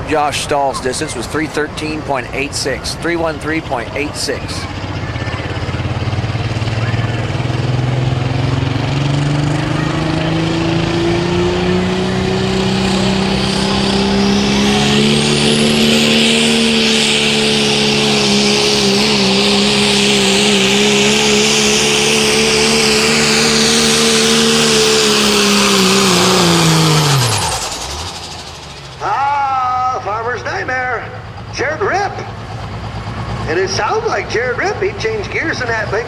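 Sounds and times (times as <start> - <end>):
diesel truck engine revving: 0.0 - 36.0
high rushing noise: 12.2 - 29.6.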